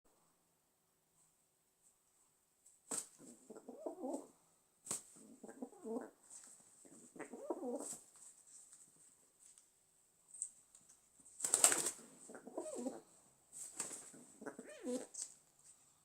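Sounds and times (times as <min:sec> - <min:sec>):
pigeon cooing: 0:03.2 - 0:04.4, 0:05.1 - 0:06.2, 0:06.8 - 0:08.0, 0:12.2 - 0:13.2, 0:13.9 - 0:15.3.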